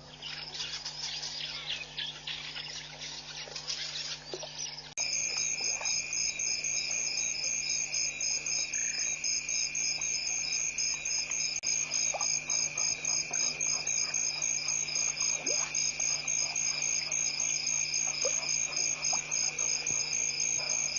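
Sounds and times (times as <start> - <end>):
crickets chirping: 0.0 - 20.9.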